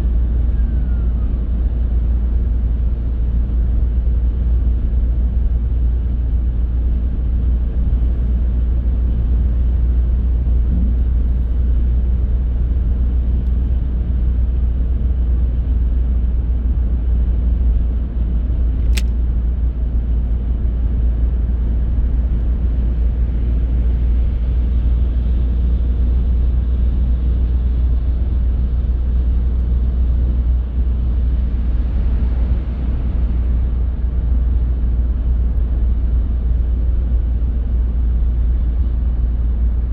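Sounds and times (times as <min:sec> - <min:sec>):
car road and engine rumble: 0:00.0 - 0:39.9
sharp click: 0:18.8 - 0:19.2.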